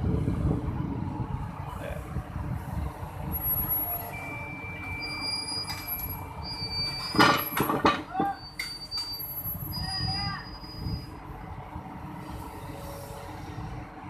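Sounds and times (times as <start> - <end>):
crane engine rumbling: 0.0 - 14.0
metal clank: 7.0 - 9.1.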